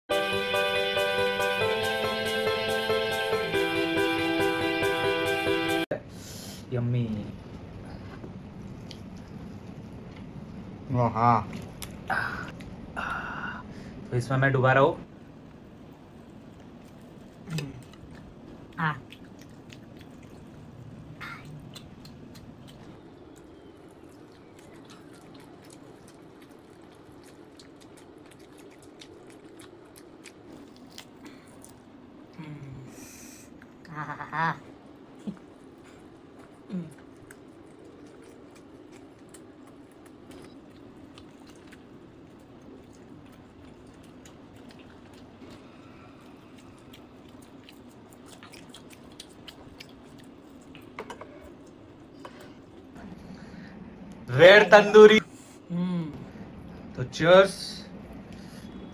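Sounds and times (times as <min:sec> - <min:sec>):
steady low hum: 0:00.1 - 0:58.9
chewing and biting meat: 0:16.4 - 0:32.2, 0:35.4 - 0:52.1
wet mouth clicks: 0:21.2 - 0:23.0.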